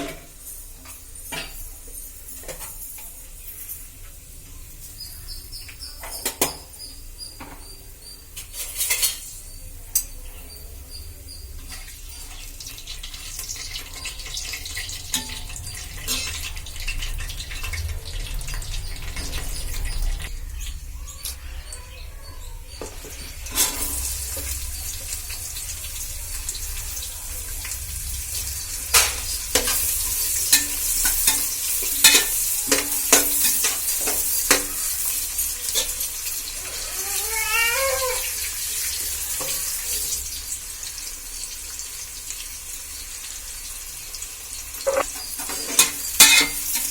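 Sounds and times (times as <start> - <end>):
food sizzling in a pan: 0.0 - 46.9
high-pitched squeak: 36.6 - 38.3.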